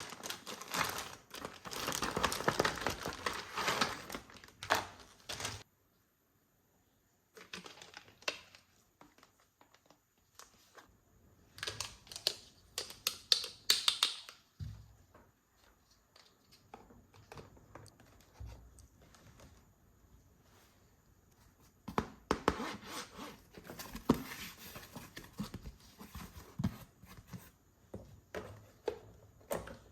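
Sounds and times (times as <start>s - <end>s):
packaging rustling: 0.0s - 5.6s
plastic toy pieces clicking: 11.6s - 14.4s.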